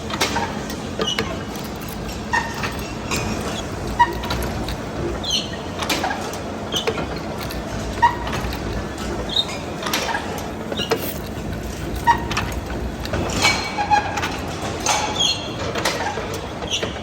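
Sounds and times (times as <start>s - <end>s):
steady background rumble: 0.0s - 15.0s
metallic clinks and knocks: 1.1s - 5.0s, 10.0s - 13.7s.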